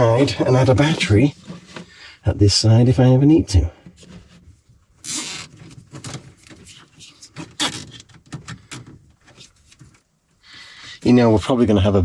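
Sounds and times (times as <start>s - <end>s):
scraping rustle: 4.0s - 10.1s.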